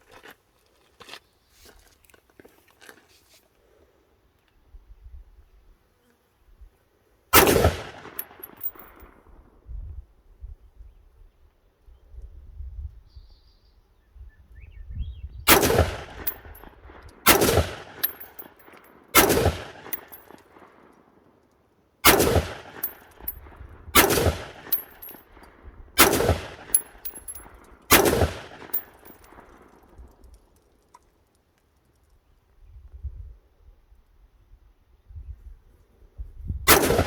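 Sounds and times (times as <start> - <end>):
rifle shots echoing: 7.4 - 9.0, 15.5 - 16.6, 17.3 - 20.8, 22.0 - 23.4, 24.0 - 25.2, 26.0 - 29.5, 36.7 - 37.0.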